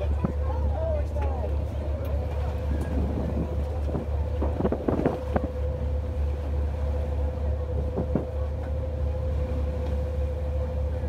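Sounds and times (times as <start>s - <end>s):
boat engine droning: 0.0s - 11.0s
wind buffeting microphone: 1.5s - 6.1s, 7.6s - 8.6s.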